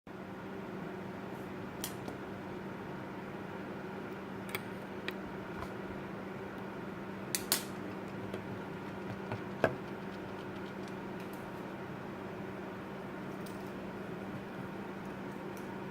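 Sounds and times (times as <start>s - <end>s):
low electrical hum: 0.1s - 15.9s
sharp clicks and taps: 7.4s - 11.4s.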